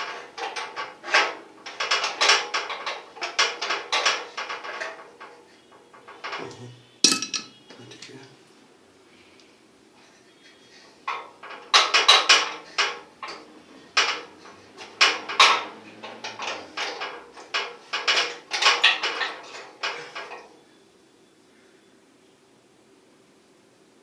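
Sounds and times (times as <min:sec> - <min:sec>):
metal tools clinking and clattering: 0:07.0 - 0:07.6.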